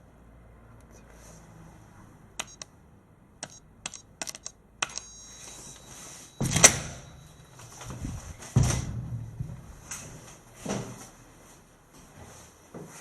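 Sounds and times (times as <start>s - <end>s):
sharp clicks: 2.4s - 2.7s, 3.4s - 5.2s
loud thud: 8.5s - 9.7s.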